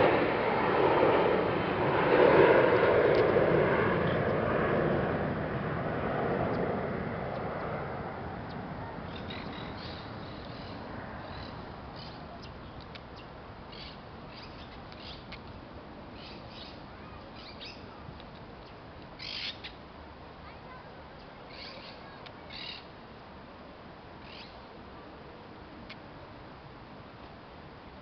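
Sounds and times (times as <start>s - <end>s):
airliner passing overhead: 0.0s - 18.1s, 18.8s - 22.9s.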